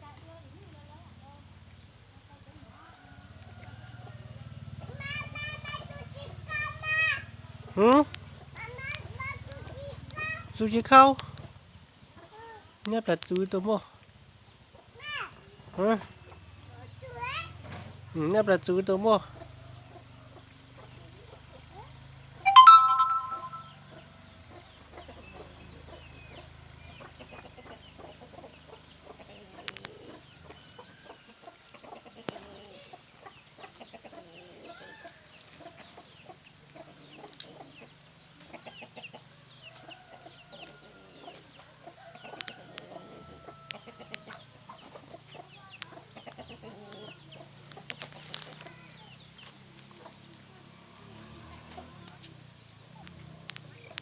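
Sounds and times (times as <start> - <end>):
short high chirps: 22.5 - 23.8
chickens clucking: 25.0 - 54.0.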